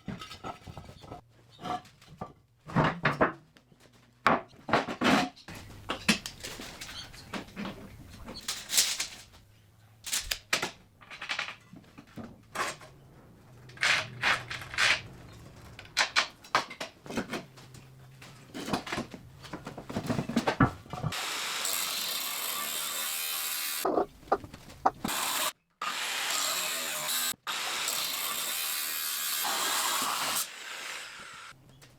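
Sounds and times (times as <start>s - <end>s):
metal parts and tools clunking: 0.0s - 9.3s, 13.6s - 21.2s.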